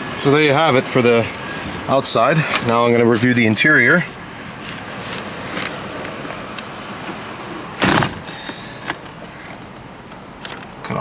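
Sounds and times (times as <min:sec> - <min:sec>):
steady background noise: 0:00.0 - 0:11.0
car door shutting thud: 0:07.0 - 0:09.0.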